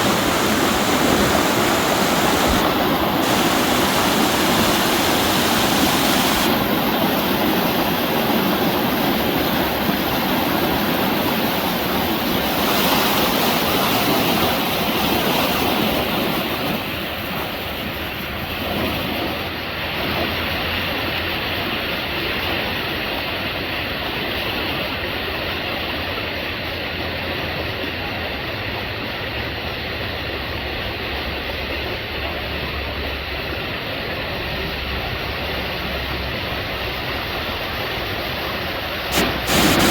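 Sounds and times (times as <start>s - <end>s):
creek water rushing over rock: 0.0s - 24.0s, 36.4s - 39.9s.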